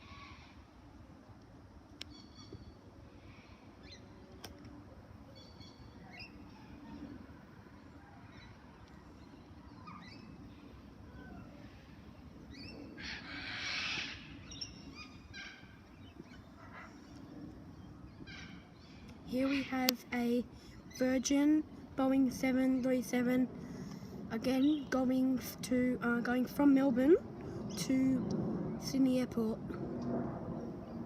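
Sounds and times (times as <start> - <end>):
faint low rumble: 0.0 - 31.0
birds chirping: 5.3 - 21.7
loud harsh bird call: 12.6 - 15.8.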